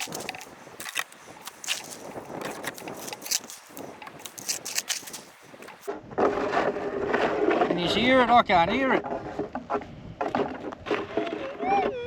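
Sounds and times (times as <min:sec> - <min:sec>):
crunching and scraping gravelly dirt: 0:00.0 - 0:07.8.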